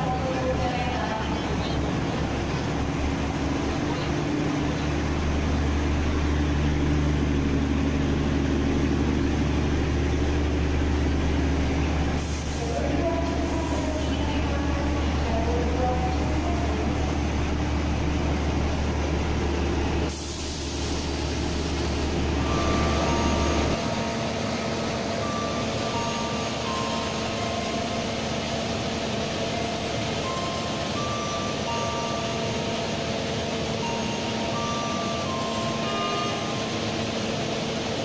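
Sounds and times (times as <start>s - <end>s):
train carriages rumbling past: 0.0s - 38.0s
air hiss: 12.2s - 14.2s, 20.1s - 22.1s
electronic beep tune: 22.4s - 23.8s.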